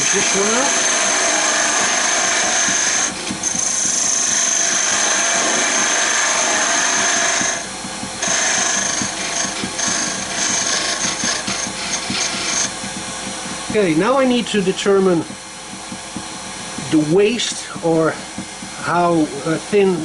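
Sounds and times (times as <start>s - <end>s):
wood lathe tool cutting hiss: 0.0s - 12.8s.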